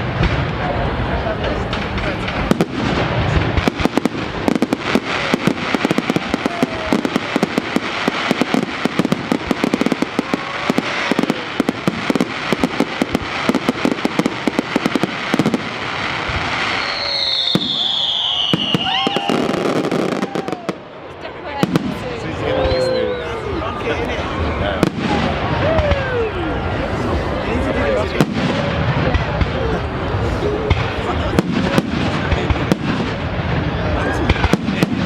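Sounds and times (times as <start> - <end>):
fireworks crackling bangs: 0.0 - 22.8, 23.6 - 35.0
firework whistle falling in pitch: 16.6 - 20.7.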